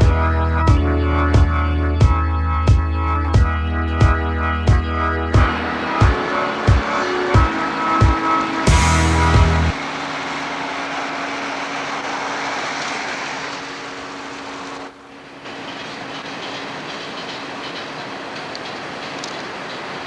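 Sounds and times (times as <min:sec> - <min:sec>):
train rumbling on rails: 0:05.4 - 0:20.0.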